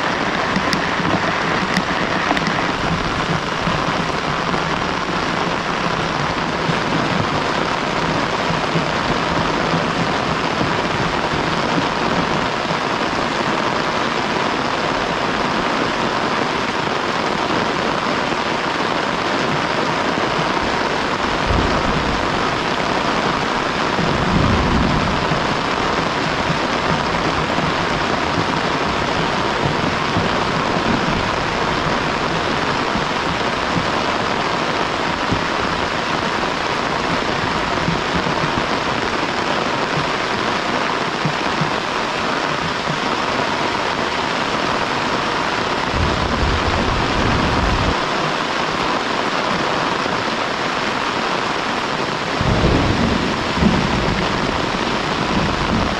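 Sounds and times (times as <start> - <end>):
low rumbles: 0.0 - 12.6, 20.6 - 40.3, 45.9 - 48.0
heavy rain falling: 0.0 - 55.9.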